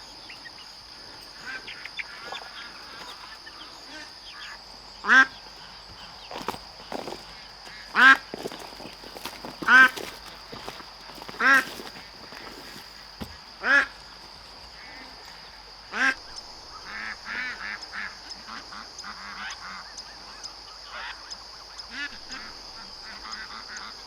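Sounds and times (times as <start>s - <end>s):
waterfowl honking: 1.4s - 5.4s, 7.7s - 13.0s
waterfowl chattering calls: 1.4s - 12.9s.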